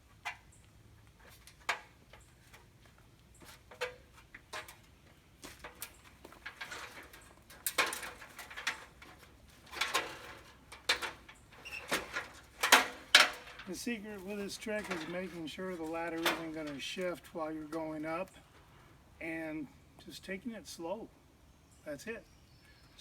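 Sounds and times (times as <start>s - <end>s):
person climbing down a ladder: 0.0s - 17.2s
shuffling and scraping: 1.1s - 20.9s.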